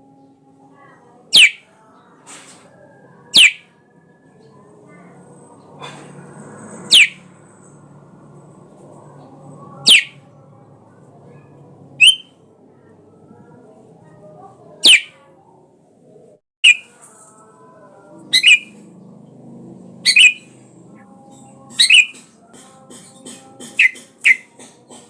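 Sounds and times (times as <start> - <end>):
bulbul short sharp calls: 1.3 - 1.6, 3.4 - 3.7, 6.9 - 7.2, 9.9 - 10.2, 12.0 - 12.3, 14.8 - 15.2, 16.6 - 16.9, 18.3 - 18.8, 20.1 - 20.5.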